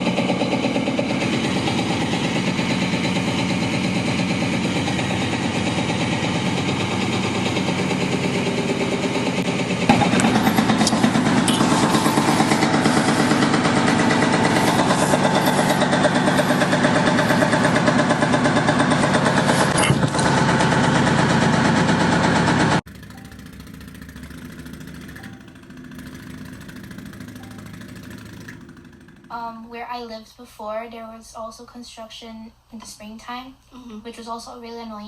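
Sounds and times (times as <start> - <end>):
construction machinery engine throbbing: 0.0 - 29.8.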